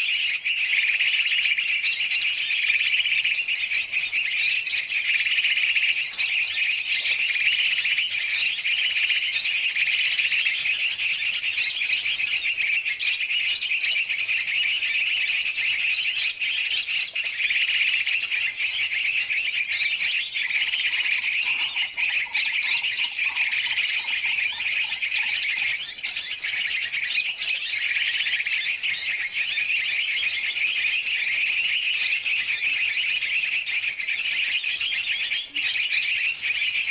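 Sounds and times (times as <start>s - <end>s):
many birds chirping: 0.0s - 36.9s
low rapid bird call: 17.2s - 28.6s.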